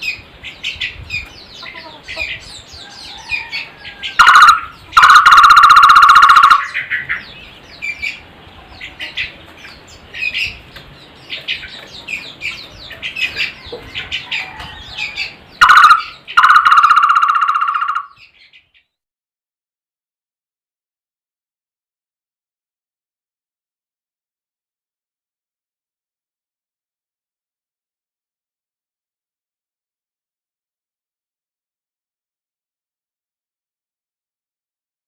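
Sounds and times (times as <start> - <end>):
small birds chirping: 0.0 - 19.0
barbet trilling call: 4.1 - 7.1, 15.0 - 18.2.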